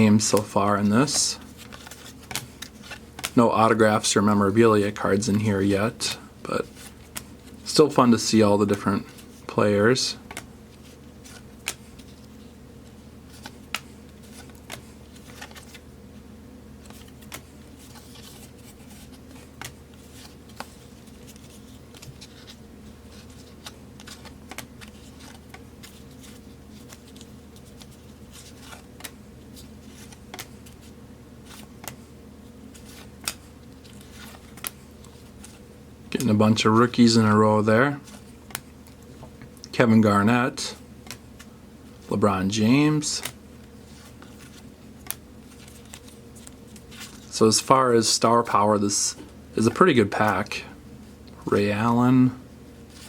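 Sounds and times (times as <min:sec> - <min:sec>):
steady low hum: 0:00.0 - 0:53.0
cards flicking and clicking: 0:00.2 - 0:03.4, 0:09.9 - 0:15.9, 0:16.8 - 0:32.1, 0:32.7 - 0:35.6, 0:38.0 - 0:39.7, 0:41.0 - 0:41.5, 0:43.0 - 0:47.3.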